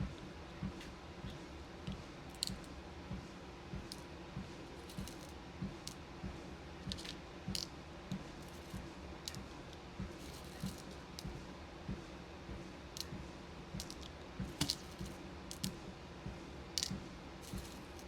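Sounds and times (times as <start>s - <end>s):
clicks of beads and plastic parts: 1.8s - 2.8s, 4.7s - 6.0s, 6.9s - 7.7s, 8.4s - 9.5s, 10.1s - 11.3s, 13.8s - 15.8s, 16.8s - 18.0s.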